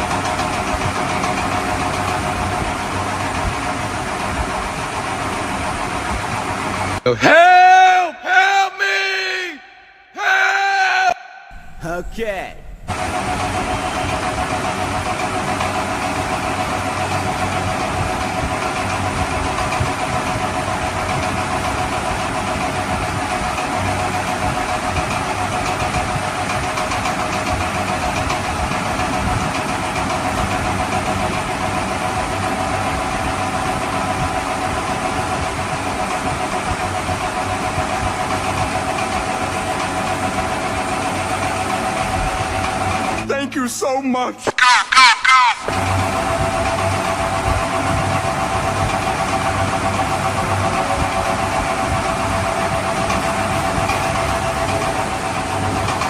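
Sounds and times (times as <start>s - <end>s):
high whine: 11.2s - 16.3s.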